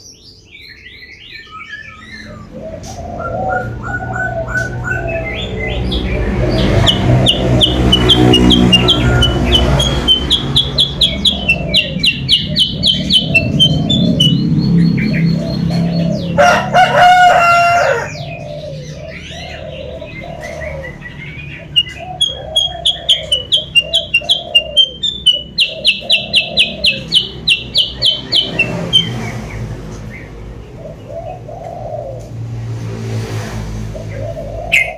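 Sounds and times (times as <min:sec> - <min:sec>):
low repeated bird notes: 0:00.0 - 0:32.6
songbird sharp high chirps: 0:06.6 - 0:15.5, 0:21.2 - 0:29.3
rooster crowing: 0:16.3 - 0:18.4.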